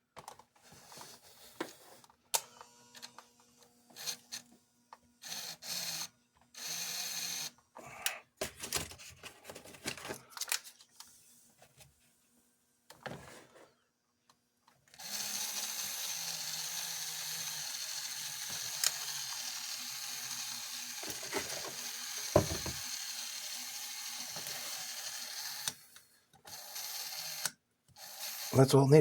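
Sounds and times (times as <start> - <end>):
toy motor whirring: 3.9 - 4.5, 5.2 - 7.6, 14.9 - 28.8.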